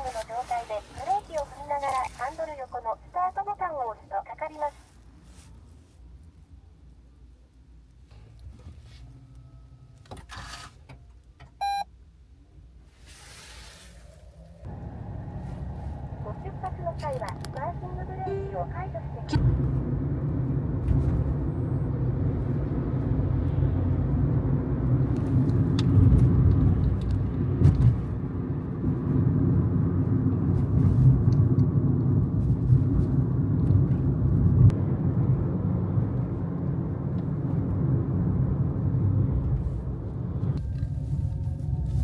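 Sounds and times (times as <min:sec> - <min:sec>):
car rumble from inside cabin: 0:00.0 - 0:03.9, 0:11.6 - 0:11.8, 0:12.9 - 0:42.0.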